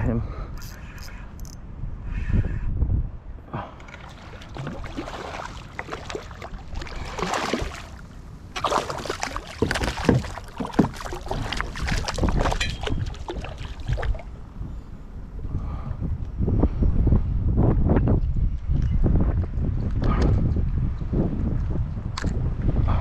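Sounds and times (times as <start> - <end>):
wind rumbling on microphone: 0.0 - 23.0
fish splashing in water: 3.9 - 14.3.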